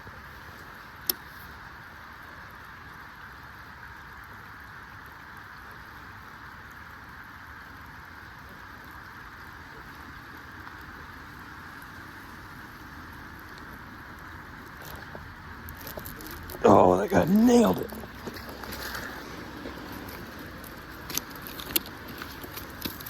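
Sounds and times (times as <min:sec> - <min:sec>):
rain falling: 0:04.1 - 0:23.0.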